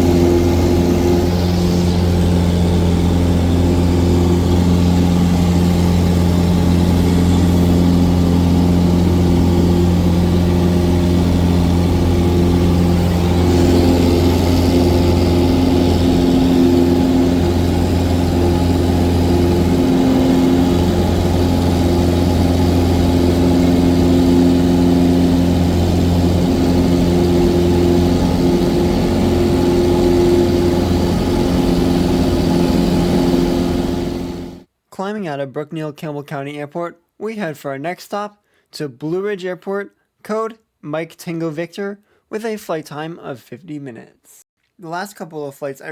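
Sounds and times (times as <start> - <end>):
aircraft propeller engine drone: 0.0 - 34.7.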